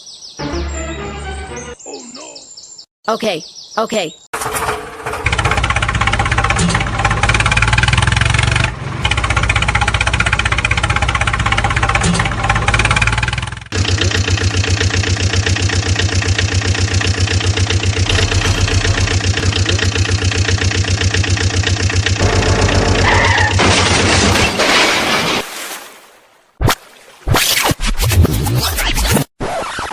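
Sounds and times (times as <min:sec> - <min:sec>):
vehicle engine idling: 0:04.4 - 0:23.5.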